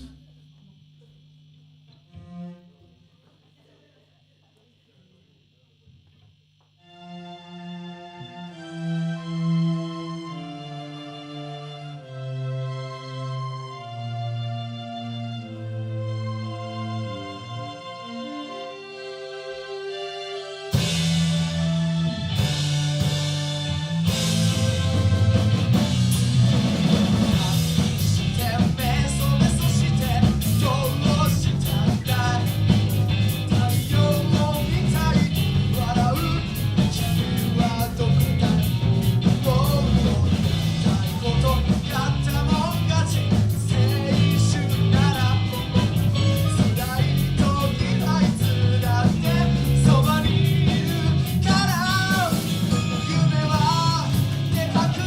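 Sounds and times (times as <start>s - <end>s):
drums: 0.0s - 1.2s, 20.7s - 55.0s
keyboard: 6.8s - 55.0s
bass guitar: 20.7s - 55.0s
electric guitars: 20.7s - 55.0s
person singing: 27.2s - 55.0s.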